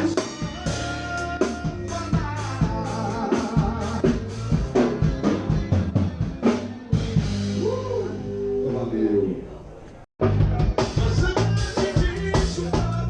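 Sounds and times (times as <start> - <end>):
drum kit beat: 0.0 - 8.2, 10.2 - 13.0
band playing live: 0.0 - 8.7, 10.2 - 13.0.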